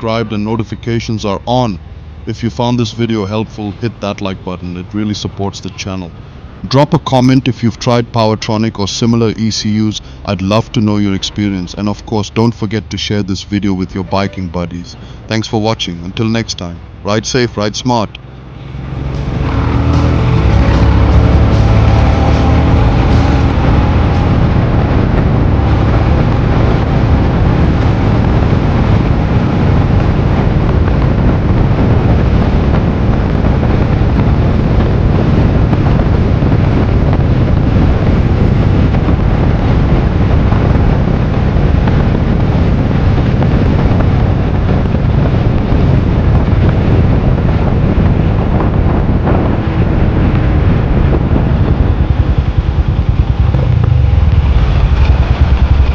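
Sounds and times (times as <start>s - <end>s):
wind noise on microphone: 0.0s - 55.9s
motorcycle engine running: 18.3s - 55.9s.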